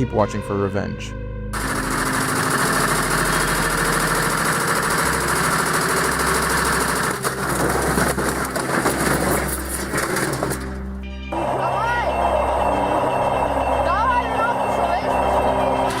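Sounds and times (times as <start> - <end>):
washing machine spinning: 1.6 - 16.0.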